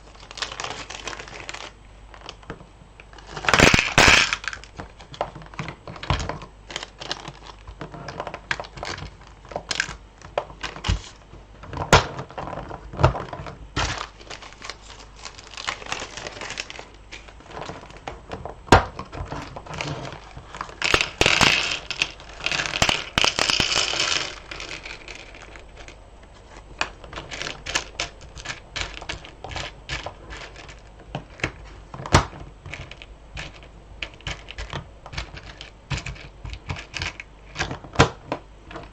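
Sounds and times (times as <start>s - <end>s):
rustling and crinkling: 0.0s - 38.9s
beads clicking and rattling: 20.8s - 26.0s.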